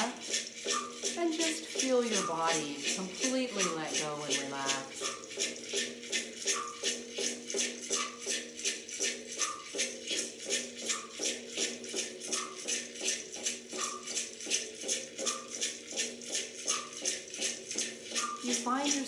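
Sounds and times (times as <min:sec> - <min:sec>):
rattle shaken steadily: 0:00.0 - 0:19.0.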